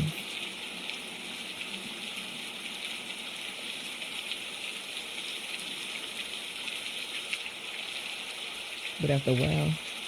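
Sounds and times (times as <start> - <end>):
water drips ticking: 0.0 - 10.0
heavy rain falling: 7.7 - 9.9.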